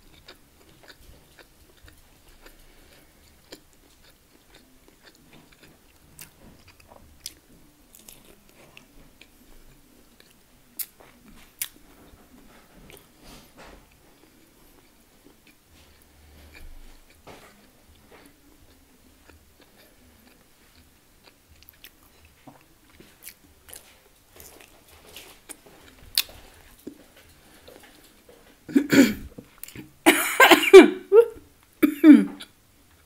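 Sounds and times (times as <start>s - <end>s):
person chewing crispy food: 0.0s - 13.2s, 13.9s - 28.7s, 29.3s - 30.0s
person coughing: 28.7s - 29.4s, 30.1s - 32.5s.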